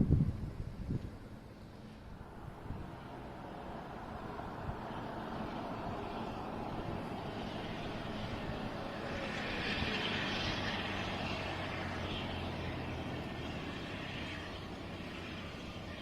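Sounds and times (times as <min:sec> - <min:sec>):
train engines droning: 0:00.6 - 0:16.0.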